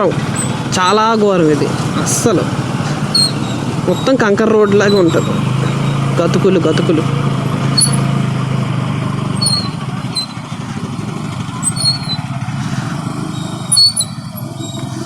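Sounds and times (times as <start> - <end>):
motorcycle engine at low speed: 0.0 - 15.0
tyres on rough gravel: 0.0 - 15.0
short high squeaks: 0.3 - 6.2, 7.6 - 8.3, 9.3 - 10.5, 11.4 - 12.4, 13.2 - 15.0.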